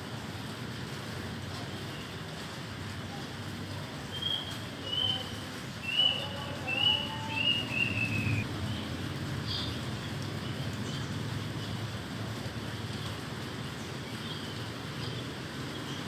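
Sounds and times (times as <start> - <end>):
rain rushing: 0.0 - 16.0
songbird whistling clear notes: 4.1 - 8.4.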